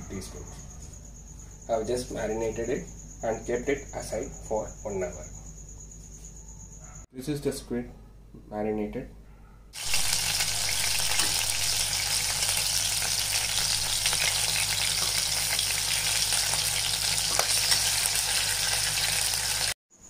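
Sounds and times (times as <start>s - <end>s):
squid frying in hot oil: 9.8s - 19.8s.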